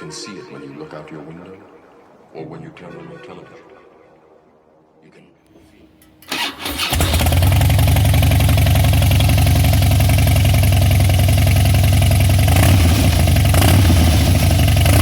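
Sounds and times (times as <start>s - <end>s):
motorcycle engine idling: 6.0s - 15.0s.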